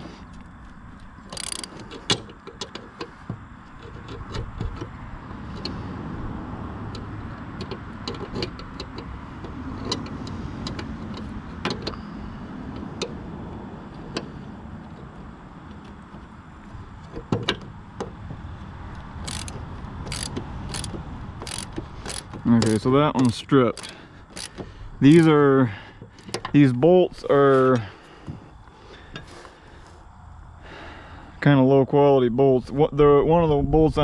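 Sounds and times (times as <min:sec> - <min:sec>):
steady low rumble: 0:00.0 - 0:34.0
socket ratchet clicking: 0:01.3 - 0:05.8, 0:06.8 - 0:12.0, 0:19.2 - 0:25.3.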